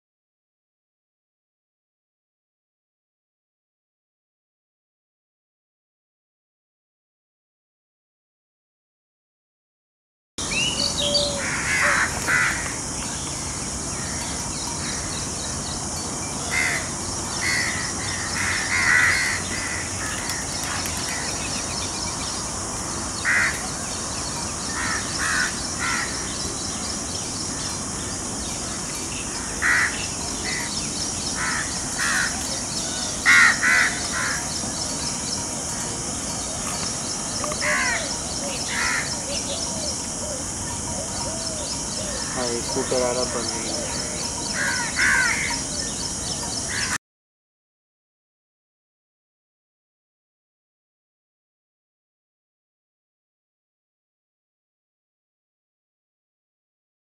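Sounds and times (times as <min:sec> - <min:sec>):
harsh bird calls: 0:10.4 - 0:47.0
high-pitched bird chorus: 0:10.4 - 0:47.0.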